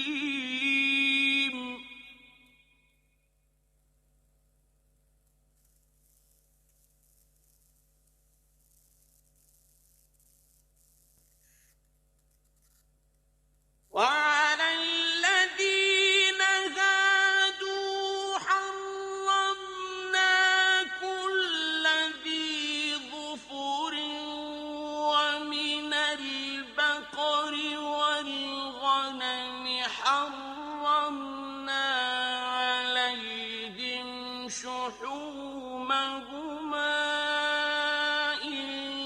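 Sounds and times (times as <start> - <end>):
man chanting melodic recitation: 14.0 - 39.0.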